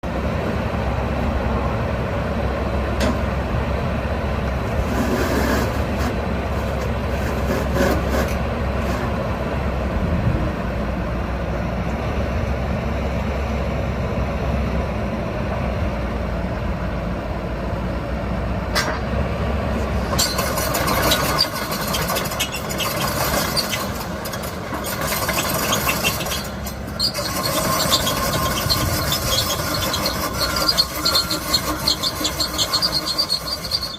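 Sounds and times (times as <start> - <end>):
excavator diesel engine humming: 0.0 - 33.9
machine squealing and clanking: 4.7 - 9.2, 20.0 - 33.9.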